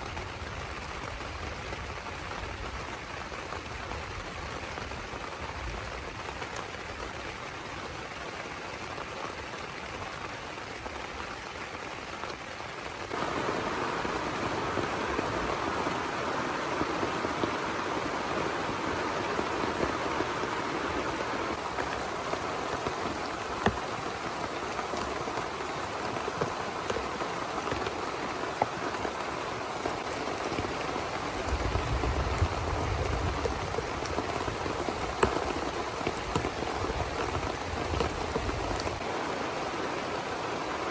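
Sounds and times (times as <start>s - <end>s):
heavy rain falling: 0.0s - 40.9s
raindrop ticks: 13.1s - 39.1s.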